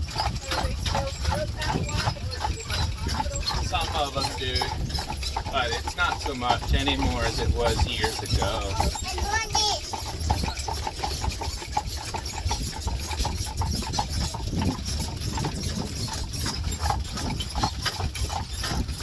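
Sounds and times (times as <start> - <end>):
horse hooves clip-clopping: 0.0 - 19.0.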